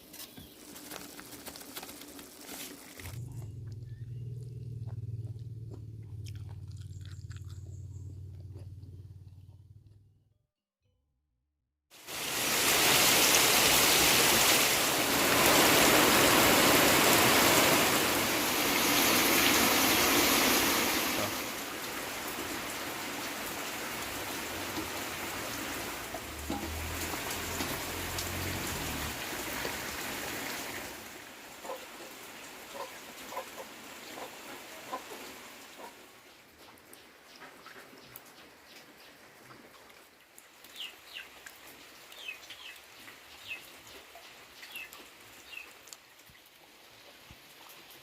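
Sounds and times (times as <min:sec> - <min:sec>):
heavy rain falling: 0:12.0 - 0:36.1.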